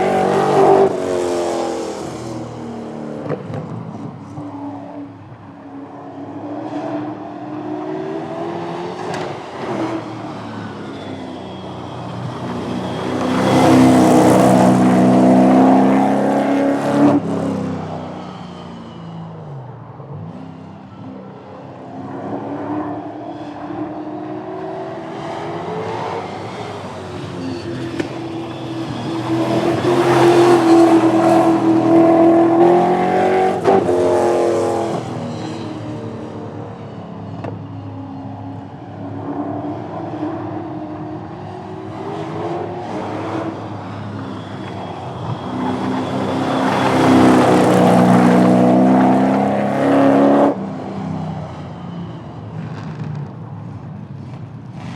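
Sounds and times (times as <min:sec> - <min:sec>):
cars accelerating hard: 0:00.0 - 0:04.4, 0:06.0 - 0:18.0, 0:21.9 - 0:36.4, 0:38.8 - 0:51.0.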